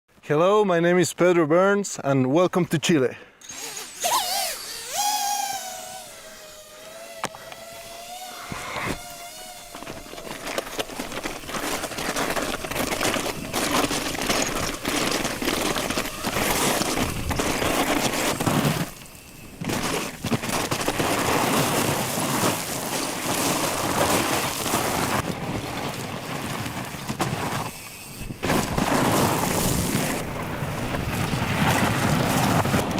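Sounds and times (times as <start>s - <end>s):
bike tyres crunching on rough ground: 4.6s - 32.9s
bike rattling clatter: 9.0s - 32.9s.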